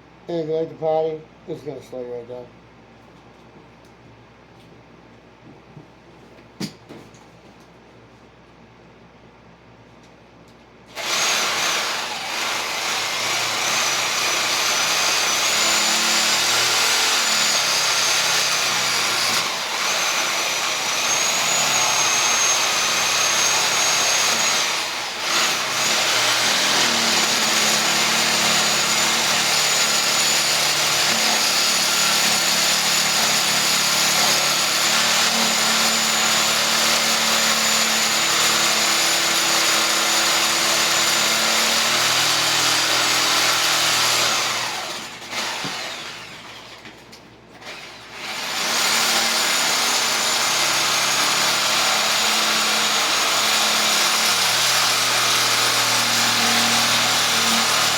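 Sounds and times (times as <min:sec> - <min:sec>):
reciprocating saw cutting wood: 0:10.9 - 0:46.7, 0:47.6 - 0:57.9.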